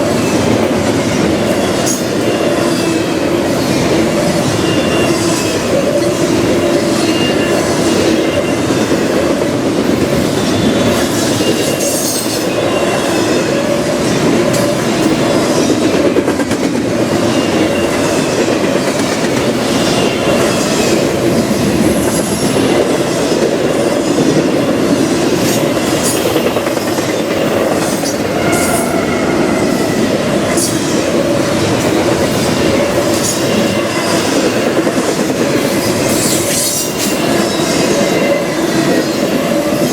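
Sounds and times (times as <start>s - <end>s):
railroad cars rolling on rails: 0.0s - 39.9s
high wheel squeals: 27.6s - 31.1s.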